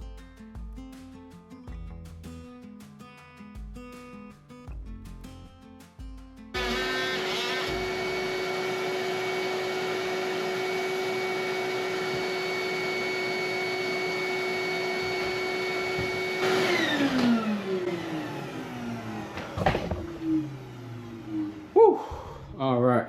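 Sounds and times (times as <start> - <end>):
oscillating multi-tool cutting: 6.6 - 17.9.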